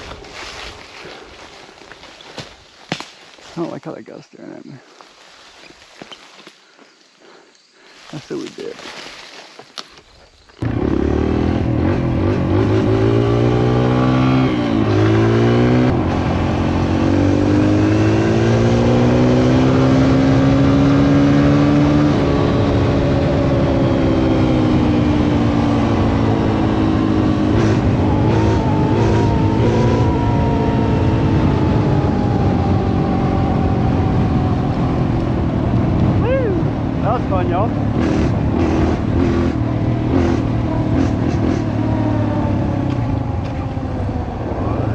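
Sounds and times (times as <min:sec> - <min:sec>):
motorcycle engine revving: 0:10.6 - 0:44.9.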